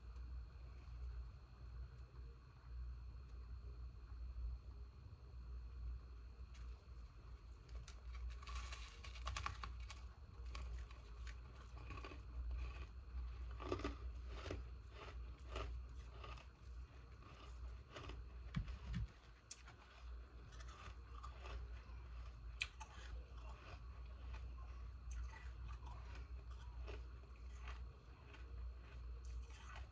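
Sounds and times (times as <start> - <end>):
ice crunching between teeth: 7.6 - 29.9.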